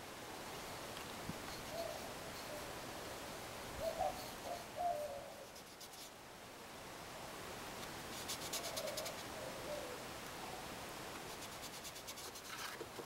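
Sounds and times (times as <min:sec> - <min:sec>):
bird cooing: 0:01.4 - 0:03.2, 0:03.8 - 0:05.6, 0:08.5 - 0:10.7.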